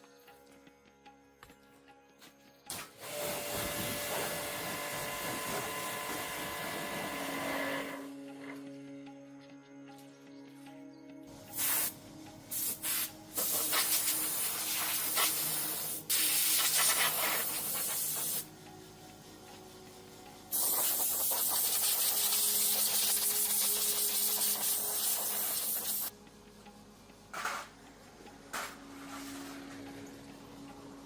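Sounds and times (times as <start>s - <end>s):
pressurised spray hissing: 11.5s - 18.5s, 20.5s - 26.1s.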